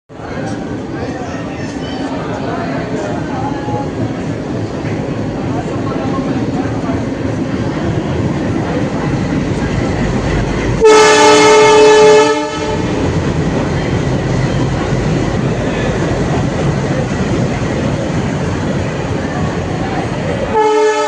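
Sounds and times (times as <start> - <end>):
train rumble: 0.1 - 21.0
locomotive horn blast: 10.8 - 13.0, 20.5 - 21.0.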